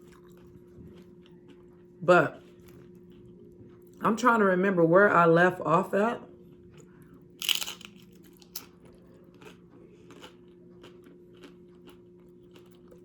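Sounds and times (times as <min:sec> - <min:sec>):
chewing with soft clicks: 0:00.0 - 0:04.0, 0:06.4 - 0:13.0
faint steady hum: 0:00.0 - 0:13.0
person biting crunchy food: 0:07.4 - 0:08.8, 0:09.4 - 0:13.0.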